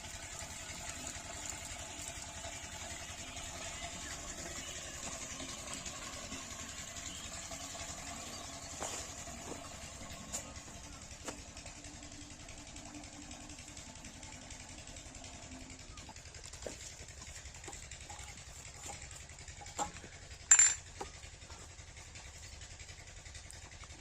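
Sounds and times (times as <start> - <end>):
diesel pump engine chugging: 0.0 - 24.0.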